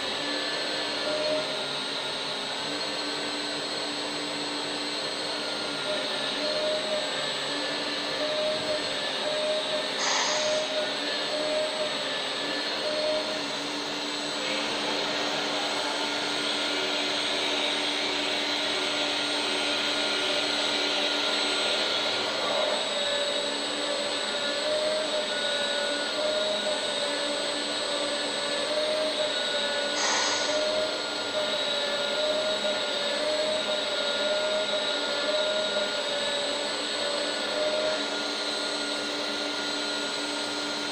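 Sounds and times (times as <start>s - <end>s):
hydraulic pump whining hiss: 0.0s - 40.9s.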